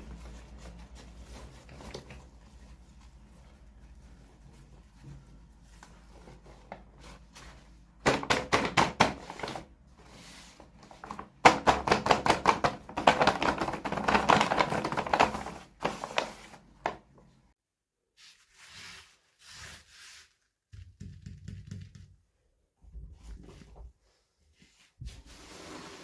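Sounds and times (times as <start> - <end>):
plastic packaging clicking and crinkling: 10.8 - 17.2.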